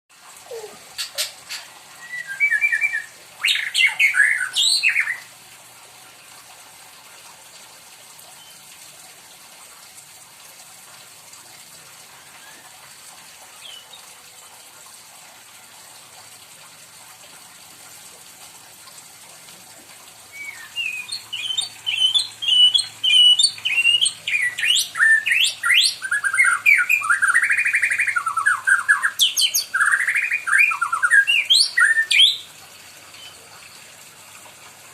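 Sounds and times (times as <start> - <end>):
bird whistles and chirps: 0.5 - 5.3, 20.3 - 32.5.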